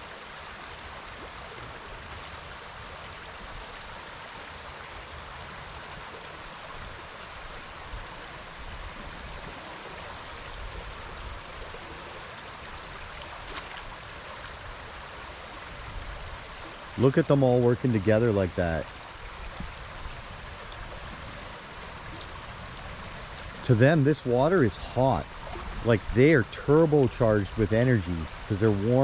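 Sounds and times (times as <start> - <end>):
river flowing: 0.0 - 29.0.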